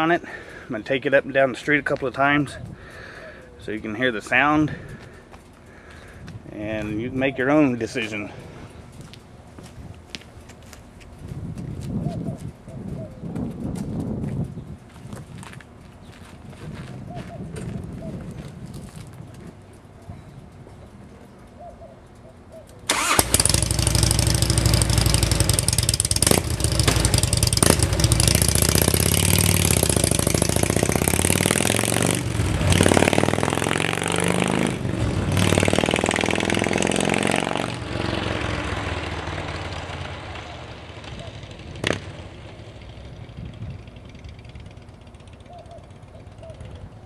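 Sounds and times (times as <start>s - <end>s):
motorcycle engine revving: 22.9s - 46.5s.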